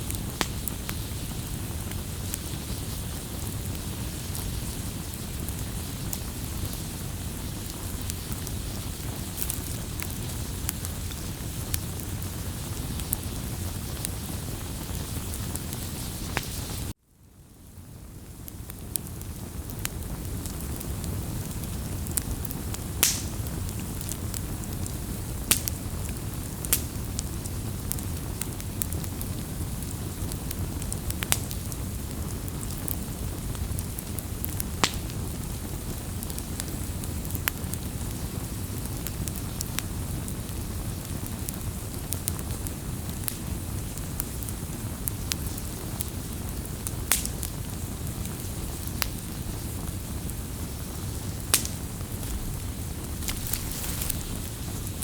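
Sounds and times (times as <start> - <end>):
fire crackles and pops: 0.0 - 55.0
low rumble of flames: 0.0 - 55.0
loud wood snaps: 23.0 - 23.4, 51.6 - 52.6, 53.2 - 54.5.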